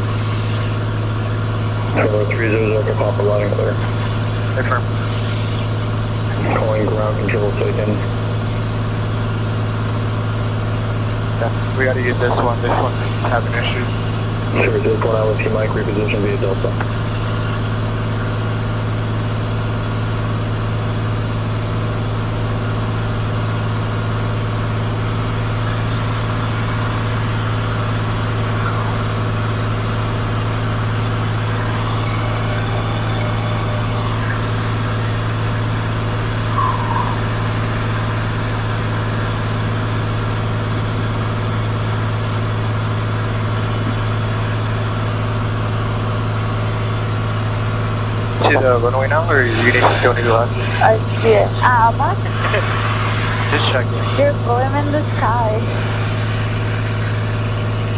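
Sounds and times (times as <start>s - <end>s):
aircraft engine and propeller drone: 0.0s - 57.9s
faint chirp: 22.2s - 47.6s.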